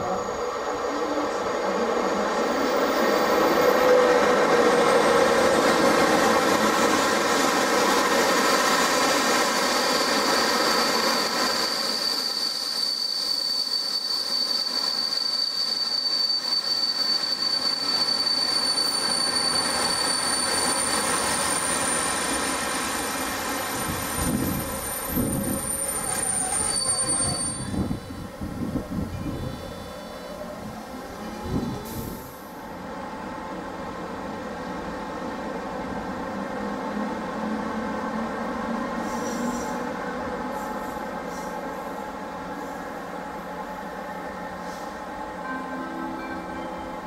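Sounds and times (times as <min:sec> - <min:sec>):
high-pitched brake squeal: 0:00.0 - 0:05.6, 0:09.5 - 0:28.4, 0:29.1 - 0:32.4, 0:39.0 - 0:41.8
train rolling on rails: 0:00.0 - 0:47.0.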